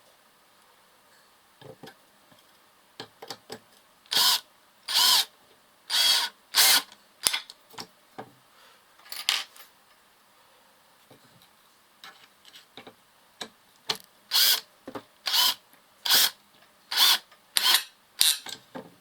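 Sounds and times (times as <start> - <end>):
cordless drill motor bursts: 4.1 - 5.3, 5.9 - 6.9, 14.3 - 14.6, 15.3 - 17.8.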